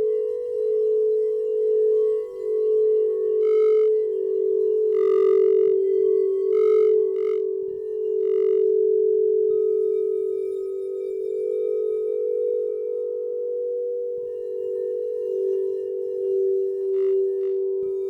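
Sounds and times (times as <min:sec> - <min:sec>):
crystal singing bowl humming: 0:00.0 - 0:18.0.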